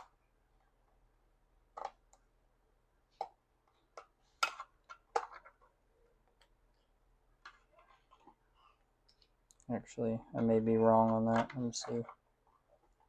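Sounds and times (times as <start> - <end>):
plastic parts clicking together: 3.2 - 5.7.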